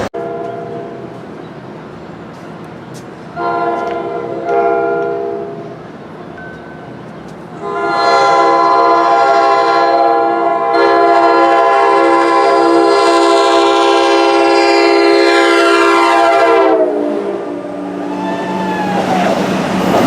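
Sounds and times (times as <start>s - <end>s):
locomotive air horn chord: 3.4s - 5.6s, 7.6s - 17.9s.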